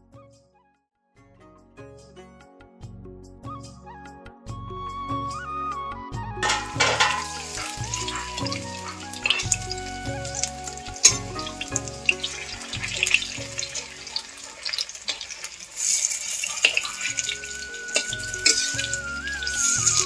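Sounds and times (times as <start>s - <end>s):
metal spatula scraping pan: 6.4s - 9.8s
pakoras sizzling in oil: 6.4s - 20.0s.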